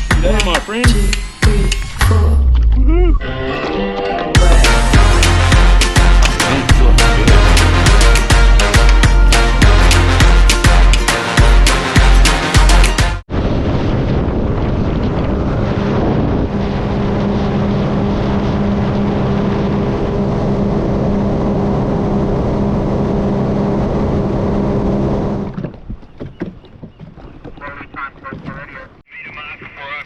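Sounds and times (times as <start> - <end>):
wind noise: 13.3 - 29.0
jet ski engine drone: 16.3 - 25.6.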